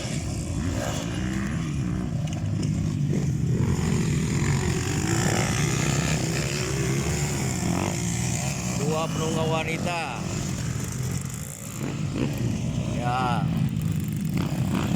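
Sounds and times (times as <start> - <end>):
motocross bike engines running: 0.0 - 14.9.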